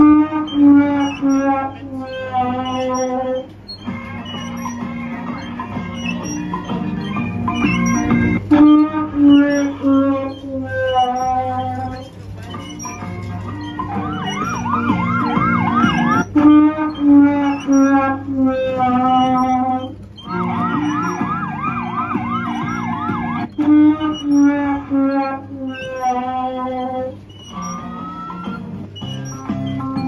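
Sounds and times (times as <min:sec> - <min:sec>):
looping ride music: 0:00.0 - 0:30.0
electronic siren wail: 0:12.9 - 0:28.6.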